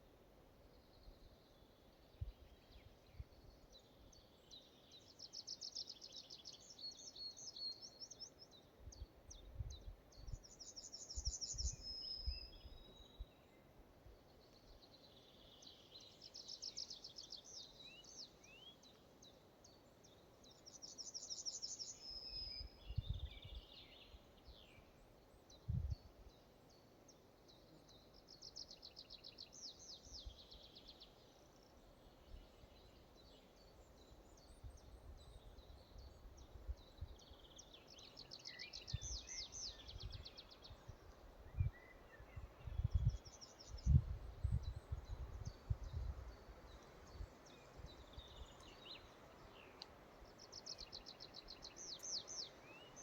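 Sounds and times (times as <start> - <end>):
faint steady hiss: 0.0 - 53.0.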